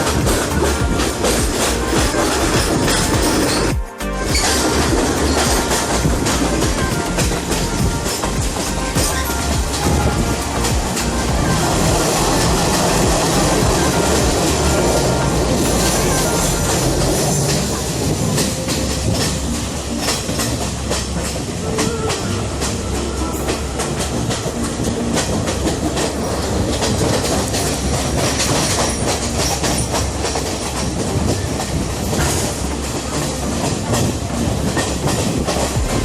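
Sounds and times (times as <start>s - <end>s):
train carriages rumbling: 0.0s - 36.0s
wheels clicking over rail joints: 0.0s - 36.0s.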